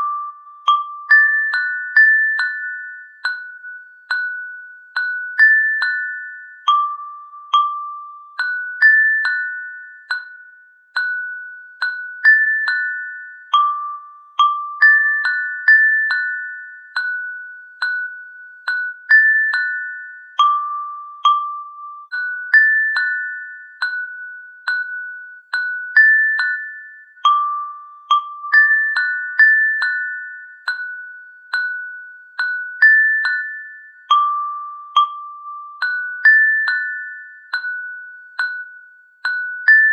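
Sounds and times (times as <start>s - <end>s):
bell-like struck notes melody: 0.0s - 39.9s.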